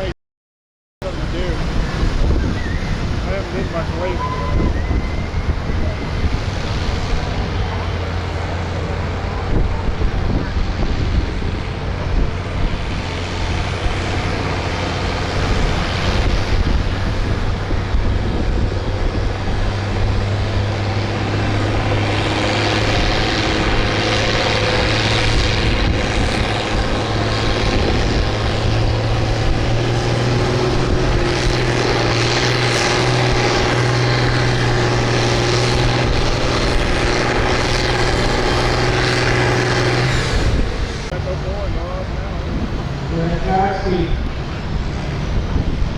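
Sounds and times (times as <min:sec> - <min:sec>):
tractor engine under load: 0:03.1 - 0:45.9.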